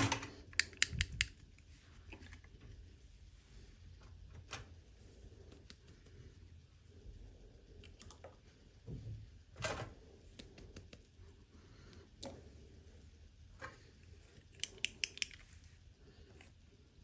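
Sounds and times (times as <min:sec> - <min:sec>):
plastic toy pieces clicking: 0:00.6 - 0:01.3, 0:14.5 - 0:15.4.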